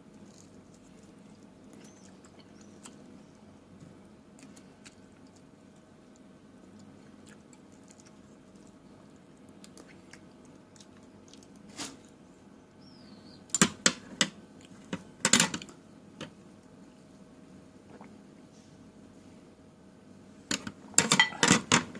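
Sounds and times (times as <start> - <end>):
crisp fruit crunching: 0.0 - 3.2, 4.3 - 12.1.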